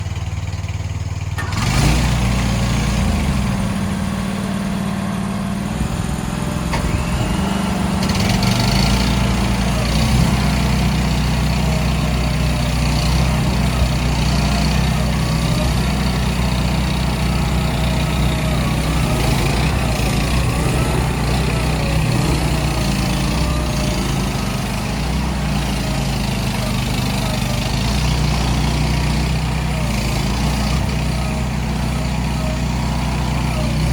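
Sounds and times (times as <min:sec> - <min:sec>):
mini excavator engine running: 0:00.0 - 0:33.9.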